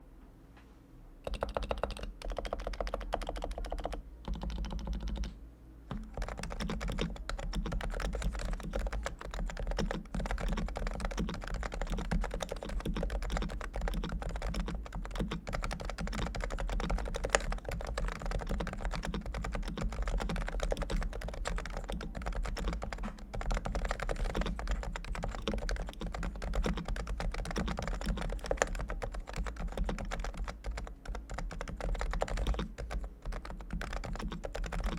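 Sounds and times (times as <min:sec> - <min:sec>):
fast typing on keyboard: 0:01.2 - 0:34.9.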